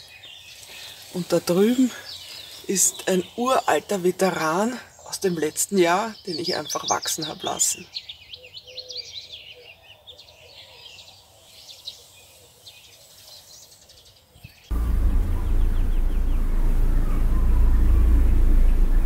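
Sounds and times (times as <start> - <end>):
small birds chirping: 0.0 - 19.0
loud low rumble: 14.7 - 19.0.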